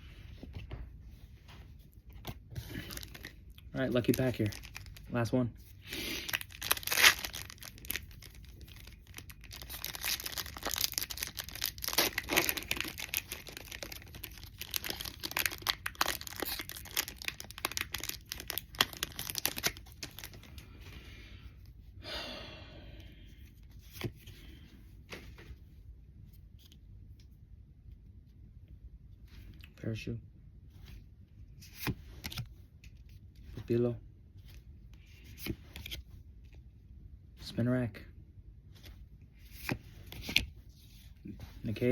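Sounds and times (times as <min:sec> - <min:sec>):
foil pack crinkling: 0:02.6 - 0:05.2, 0:05.9 - 0:20.6.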